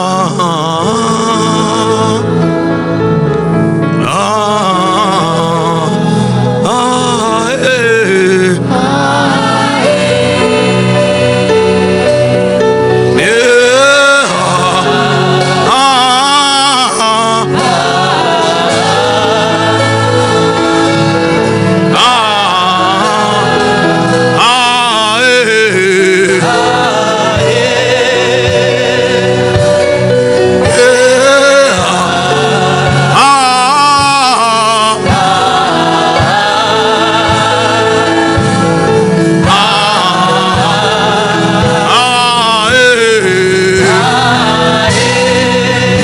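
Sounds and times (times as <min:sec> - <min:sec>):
person singing with vibrato: 0:00.0 - 0:03.2, 0:03.8 - 0:46.0
choir backing voices: 0:00.0 - 0:46.0
steady beat: 0:35.0 - 0:43.0.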